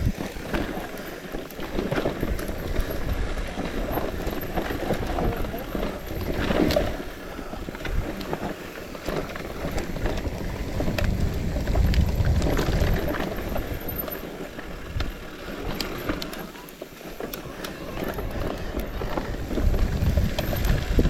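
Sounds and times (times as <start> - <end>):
wind buffeting microphone: 0.0 - 0.7, 9.0 - 14.1, 18.0 - 21.0
bicycle tyres rumbling on trail: 0.0 - 21.0.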